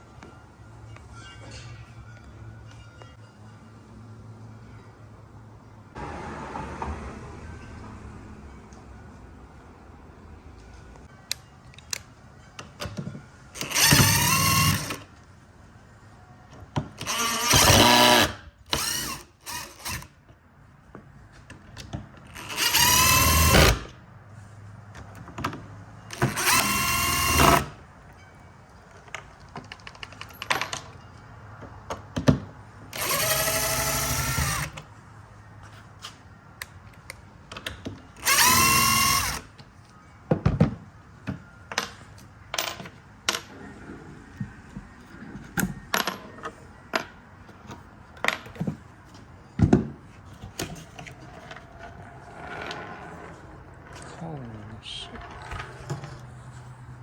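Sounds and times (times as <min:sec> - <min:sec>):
cordless drill whirring: 0:13.6 - 0:15.0, 0:17.0 - 0:20.1, 0:22.4 - 0:23.9, 0:26.1 - 0:27.7, 0:33.0 - 0:34.8, 0:38.2 - 0:39.5.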